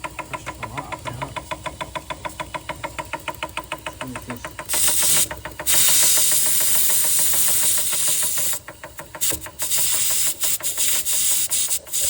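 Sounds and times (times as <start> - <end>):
steam engine exhaust beats: 0.0 - 12.0
steam hissing from valve: 4.6 - 12.0.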